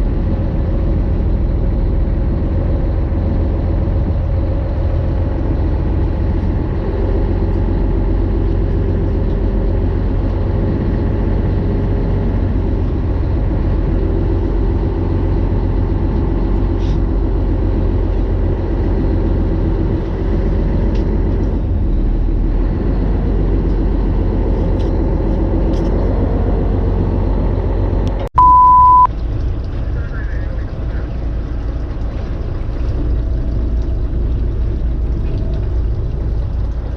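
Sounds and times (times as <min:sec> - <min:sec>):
engine droning: 0:00.0 - 0:36.9
high-pitched beep: 0:28.4 - 0:29.1.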